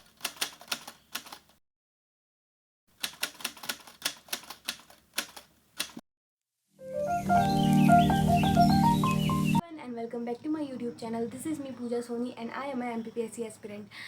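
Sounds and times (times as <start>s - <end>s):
typewriter keys clacking: 0.0s - 1.6s, 3.0s - 6.0s.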